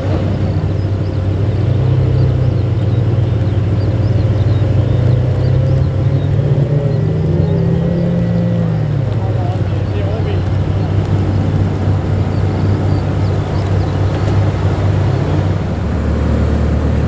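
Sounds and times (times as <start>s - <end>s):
car engine running at low revs: 0.0s - 17.0s.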